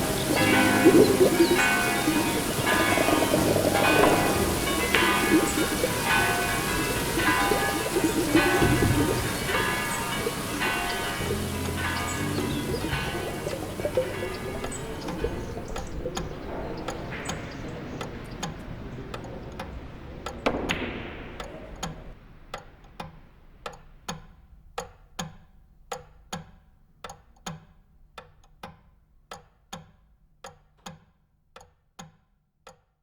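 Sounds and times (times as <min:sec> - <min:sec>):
background ambience: 0:00.0 - 0:24.1
clock ticking: 0:00.0 - 0:33.0.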